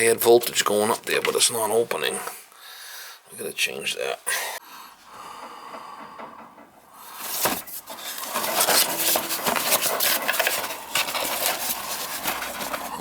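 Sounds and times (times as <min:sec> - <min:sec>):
metal and plastic parts clattering: 0:06.3 - 0:13.0.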